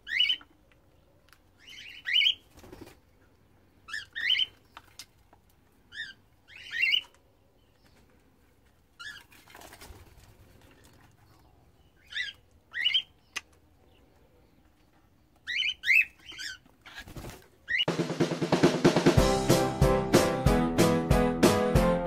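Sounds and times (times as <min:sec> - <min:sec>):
cockatiels chirping: 0:01.6 - 0:02.4, 0:03.9 - 0:04.6, 0:05.9 - 0:07.1, 0:12.0 - 0:13.5, 0:15.4 - 0:17.9.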